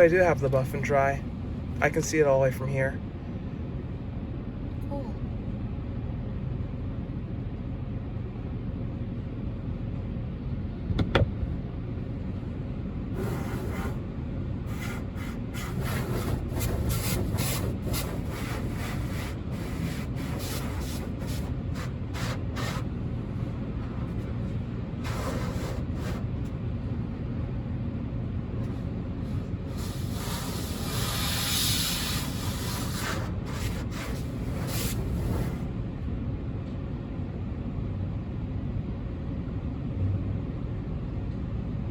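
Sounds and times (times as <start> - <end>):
car engine idling: 9.7 - 36.6
hissing bursts: 13.2 - 14.0, 14.7 - 22.8, 25.0 - 26.2, 29.7 - 35.7.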